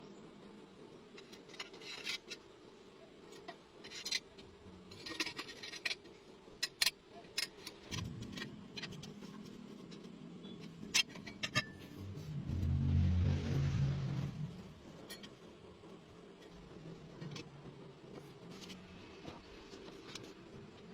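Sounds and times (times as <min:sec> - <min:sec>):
low steady hum: 0:00.0 - 0:20.9
metal scrapes: 0:11.0 - 0:15.4.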